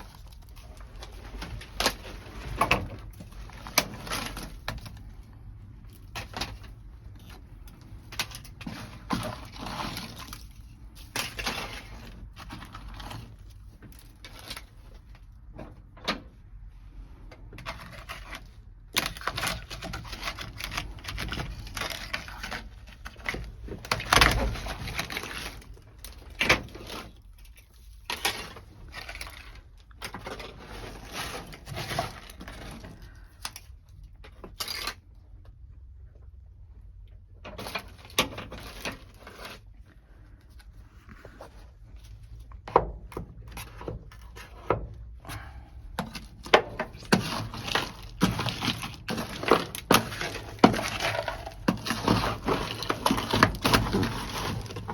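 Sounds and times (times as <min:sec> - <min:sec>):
frozen material cracking and scraping: 0:00.0 - 0:15.3, 0:17.5 - 0:35.3, 0:37.5 - 0:42.5, 0:45.9 - 0:54.9.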